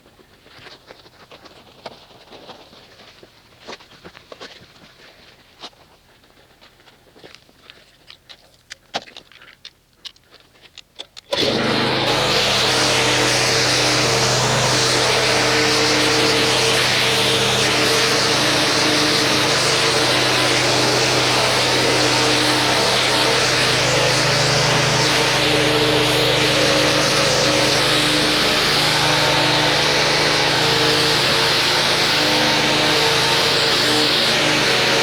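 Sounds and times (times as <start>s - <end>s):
machine motor humming and hissing: 11.3s - 35.0s.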